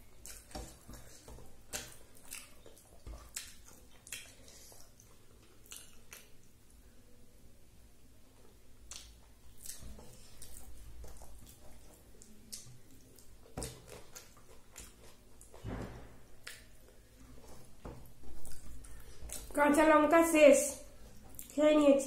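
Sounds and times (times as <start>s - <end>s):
wet chewing and mouth clicks: 0.0s - 6.8s, 8.8s - 15.6s, 16.4s - 19.6s, 21.0s - 21.6s.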